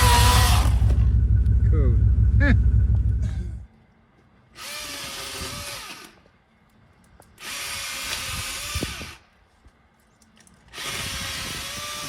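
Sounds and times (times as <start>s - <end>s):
battery chainsaw revving: 0.0s - 1.1s
loud low rumble: 0.0s - 3.7s.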